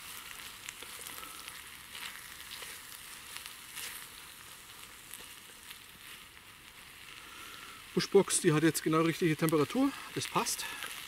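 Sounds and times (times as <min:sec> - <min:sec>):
spoon stirring a pan: 0:00.0 - 0:06.3
food sizzling in a pan: 0:00.0 - 0:11.0.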